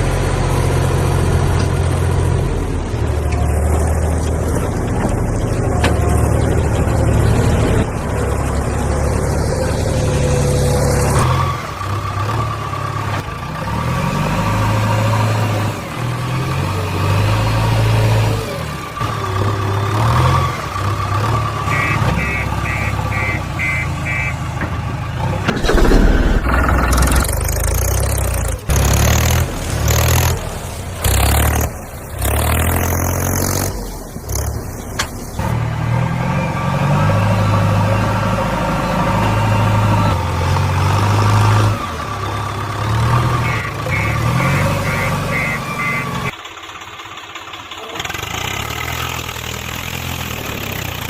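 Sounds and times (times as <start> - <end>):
heavy vehicle engine running: 0.0 - 51.0
short high beeps: 21.7 - 24.4.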